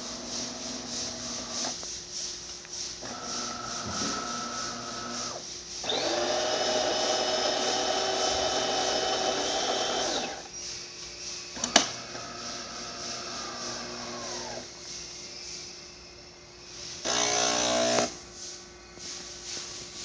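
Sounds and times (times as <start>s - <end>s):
espresso machine humming: 3.0s - 10.5s, 11.9s - 14.7s.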